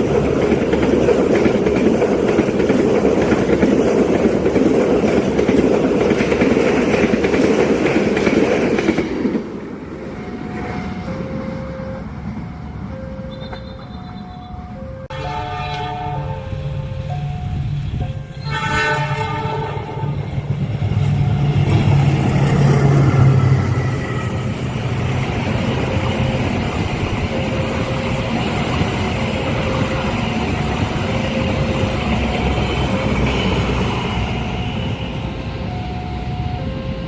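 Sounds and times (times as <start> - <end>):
carriages running over track: 0.0 - 37.0
diesel locomotive rumbling past: 0.0 - 37.0
locomotive horn blasts: 13.2 - 16.8, 17.8 - 20.4.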